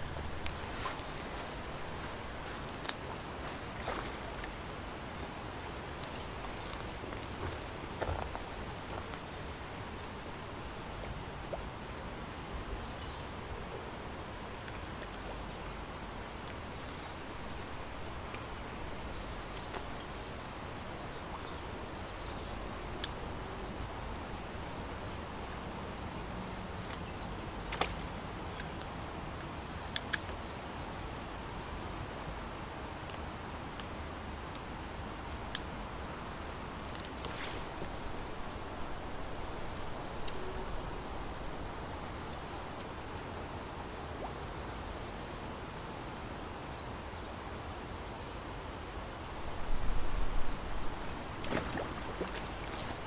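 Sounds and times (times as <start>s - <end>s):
steady background hiss: 0.0s - 53.0s
small birds chirping: 0.5s - 4.3s.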